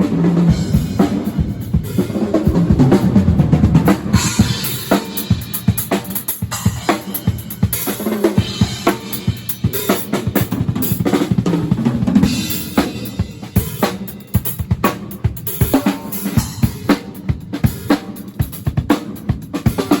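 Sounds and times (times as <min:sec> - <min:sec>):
drum kit solo: 0:00.0 - 0:20.0.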